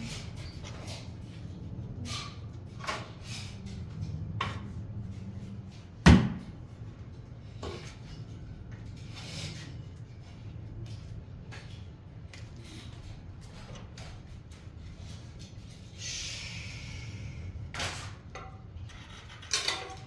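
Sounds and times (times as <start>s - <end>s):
tools knocking and scraping: 17.7s - 20.0s.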